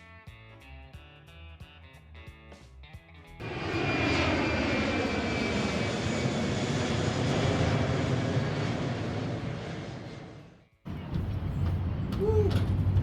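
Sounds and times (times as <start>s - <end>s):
jet engine whine and rush: 3.4s - 13.0s.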